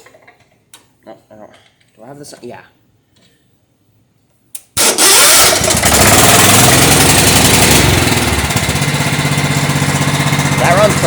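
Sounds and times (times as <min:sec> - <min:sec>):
lawn tractor engine running: 0:04.8 - 0:11.0.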